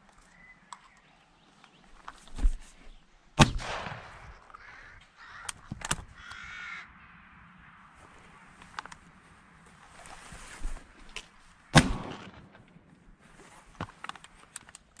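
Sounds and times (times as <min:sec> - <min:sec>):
shotgun shot echoing: 0:03.4 - 0:04.5, 0:11.7 - 0:12.7.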